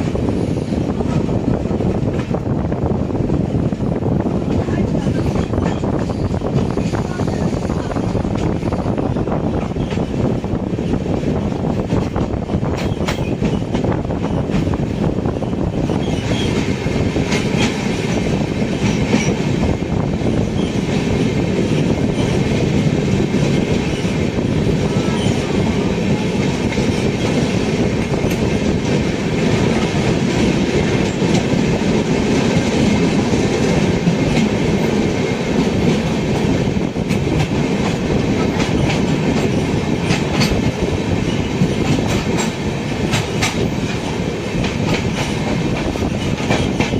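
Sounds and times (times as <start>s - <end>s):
train rumbling on rails: 0.0s - 46.9s.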